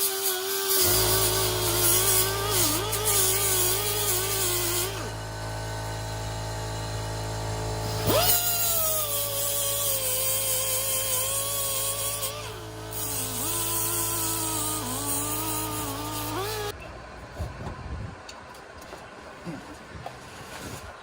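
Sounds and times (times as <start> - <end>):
power tool motor whining: 0.0 - 16.8.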